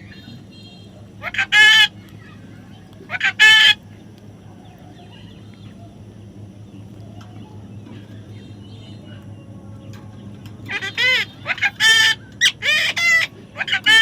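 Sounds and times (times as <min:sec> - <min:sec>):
parrot calling: 0:00.0 - 0:03.8, 0:10.6 - 0:14.0
low steady hum: 0:00.0 - 0:14.0.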